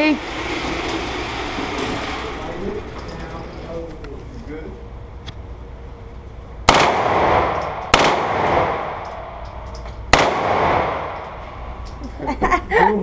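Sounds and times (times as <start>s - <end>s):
gunshots with echo: 6.7s - 9.4s, 10.1s - 11.6s.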